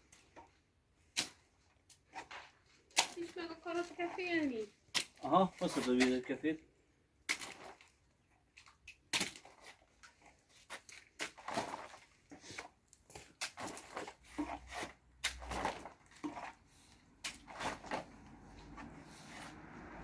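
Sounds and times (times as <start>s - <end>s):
wet clay splats: 4.9s - 5.3s, 7.2s - 7.9s, 8.8s - 9.7s
short scrapes: 13.8s - 20.0s.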